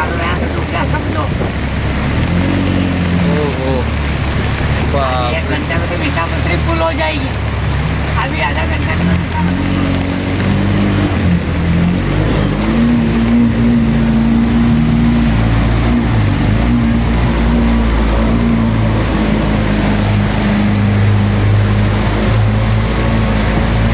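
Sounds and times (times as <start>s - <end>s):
engine humming: 0.0s - 23.9s
rushing water or rain: 0.0s - 23.9s.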